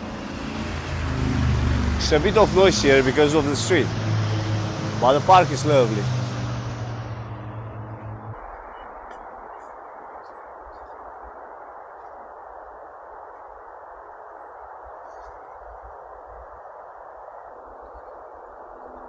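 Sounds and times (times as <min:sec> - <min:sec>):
street traffic hiss: 0:00.0 - 0:10.4
bird chirps: 0:06.8 - 0:11.0.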